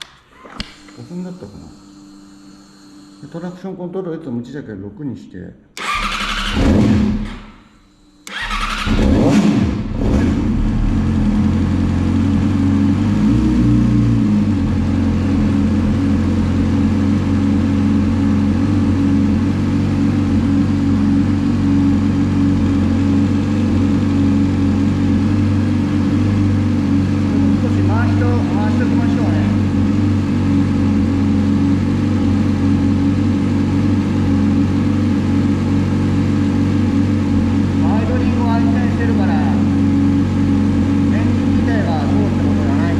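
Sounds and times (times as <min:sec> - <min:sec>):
motorcycle engine cranking: 0:05.8 - 0:07.4, 0:08.3 - 0:09.4
motorcycle engine idling: 0:09.8 - 0:42.9.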